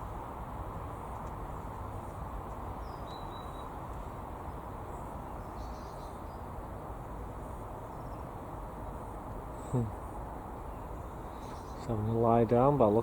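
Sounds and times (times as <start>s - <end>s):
outdoor rumble and hiss: 0.0s - 13.0s
faint high bird chirps: 2.8s - 4.2s, 4.9s - 6.5s, 10.6s - 12.1s.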